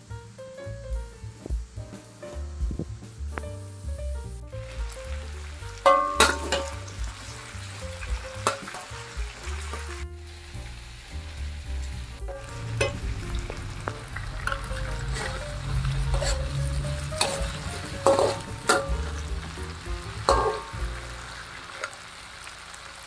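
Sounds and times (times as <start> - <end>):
potatoes sizzling in hot oil: 0.0 - 23.0
metal spatula scraping a pan: 5.8 - 10.0, 12.3 - 19.2, 20.2 - 22.0.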